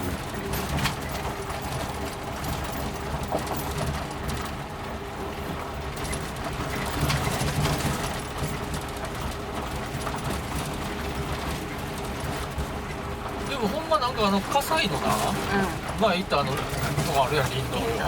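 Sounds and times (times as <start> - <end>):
engine and drivetrain rumble: 0.0 - 18.0.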